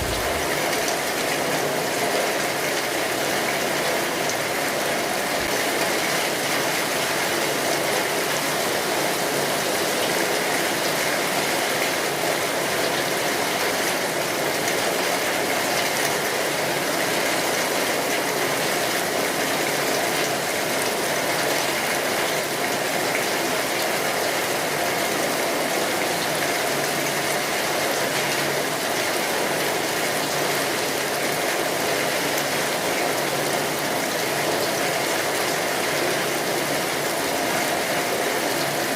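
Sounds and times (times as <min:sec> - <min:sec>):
rain pattering: 0:00.0 - 0:38.9.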